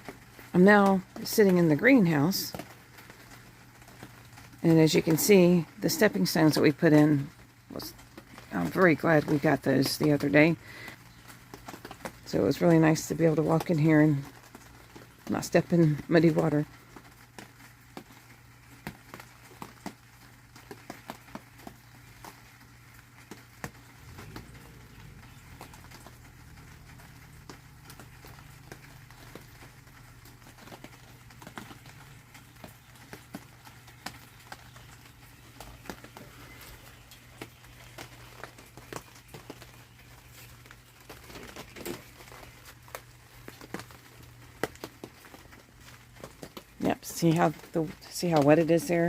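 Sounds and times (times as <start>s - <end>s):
rain pattering on a roof: 0.0s - 49.0s
steady low hum: 23.8s - 30.2s.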